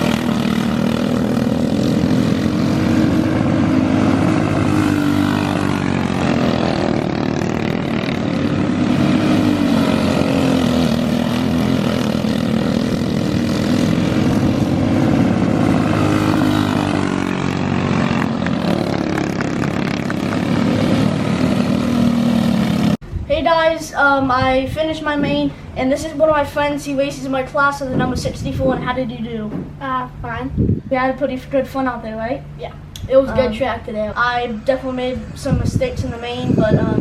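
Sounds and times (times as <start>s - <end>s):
kart engine running hard: 0.0s - 23.0s.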